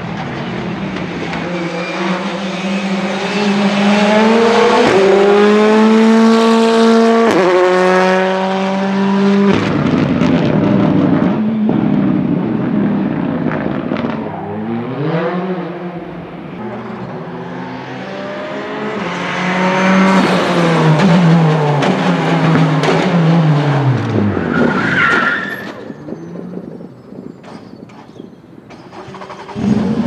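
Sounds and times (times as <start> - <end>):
rally car engine revving: 0.0 - 27.3, 28.8 - 30.0
tyre squeal: 1.2 - 3.5, 24.2 - 29.6.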